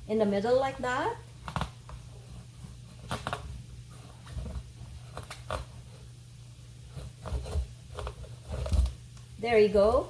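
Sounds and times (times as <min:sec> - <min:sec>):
steady low hum: 0:00.0 - 0:10.0
knife cutting through squash: 0:06.9 - 0:09.0.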